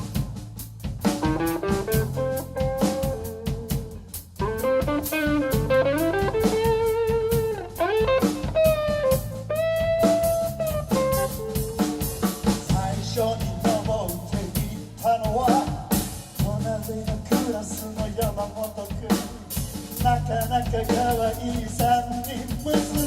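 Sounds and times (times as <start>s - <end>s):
bass guitar: 0.0s - 23.0s
drum kit: 0.0s - 23.0s
lead guitar with bent notes: 1.2s - 12.2s.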